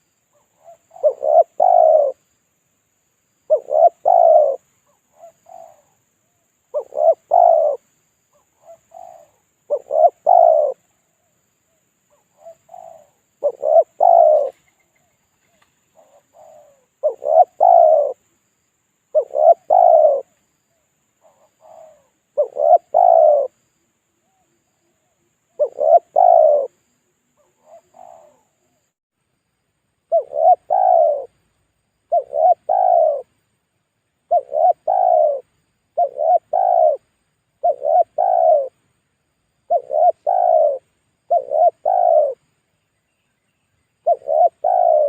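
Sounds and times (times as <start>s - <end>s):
dove cooing: 0.0s - 2.3s, 3.5s - 6.0s, 6.7s - 11.3s, 12.1s - 18.2s, 19.1s - 23.6s, 24.3s - 28.8s, 30.1s - 31.4s, 32.1s - 33.3s, 34.3s - 38.8s, 39.7s - 42.4s, 44.0s - 45.0s.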